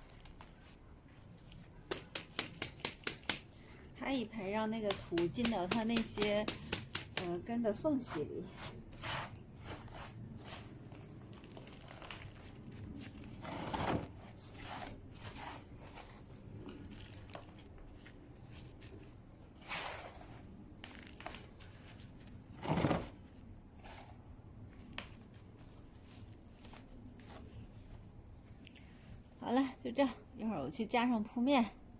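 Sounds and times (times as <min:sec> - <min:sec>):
hands patting a plant pot: 0:01.9 - 0:03.5, 0:04.7 - 0:07.5
gritty soil rustling and crunching: 0:08.9 - 0:28.0.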